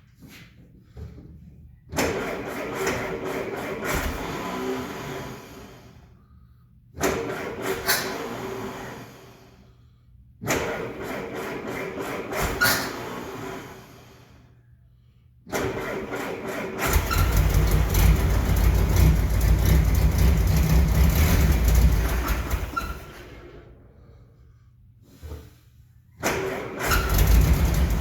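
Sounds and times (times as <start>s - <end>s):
engine starter cranking: 2.0s - 5.6s, 15.5s - 23.7s, 26.2s - 28.0s
engine running: 16.4s - 23.4s, 26.8s - 28.0s.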